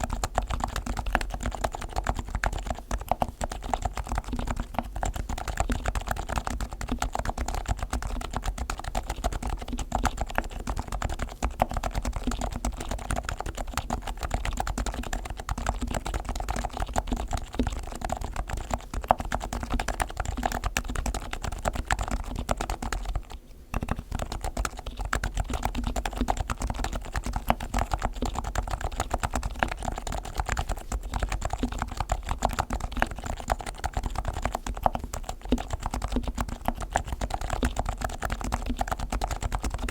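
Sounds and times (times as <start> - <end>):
soft keyboard typing: 0.0 - 39.9.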